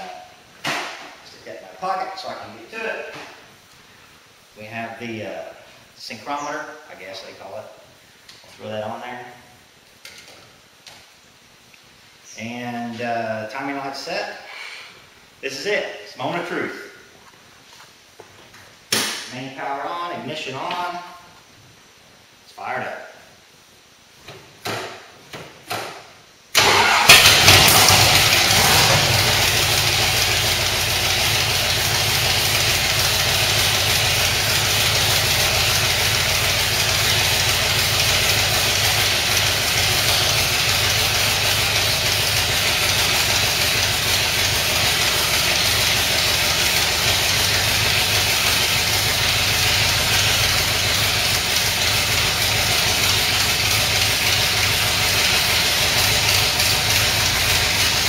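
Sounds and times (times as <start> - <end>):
engine starting and idling: 26.5 - 58.0.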